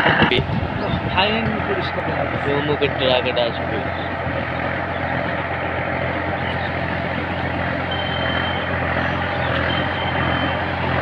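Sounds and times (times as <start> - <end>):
tractor engine running: 0.0 - 11.0
short high tone: 7.8 - 11.0.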